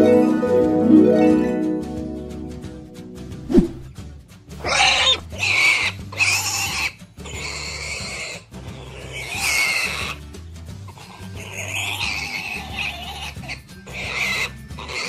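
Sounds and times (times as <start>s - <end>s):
pig calls: 4.6s - 10.3s, 10.9s - 15.0s.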